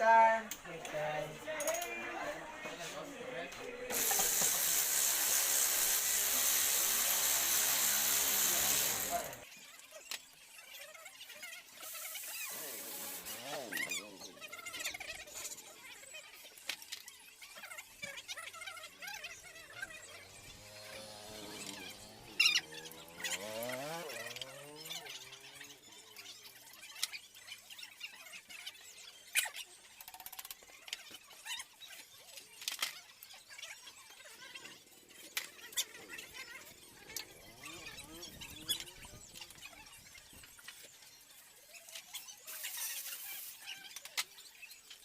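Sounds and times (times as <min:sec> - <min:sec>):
motor whine: 0:03.9 - 0:09.4.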